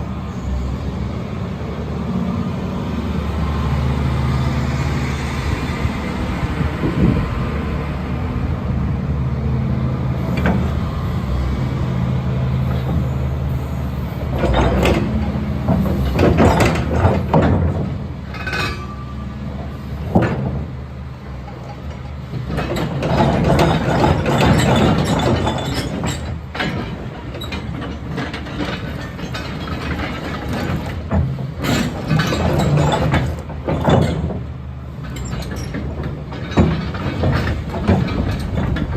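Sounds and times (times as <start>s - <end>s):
excavator diesel engine running: 0.0s - 38.9s
machine clanking and scraping: 10.2s - 11.7s, 12.5s - 38.9s.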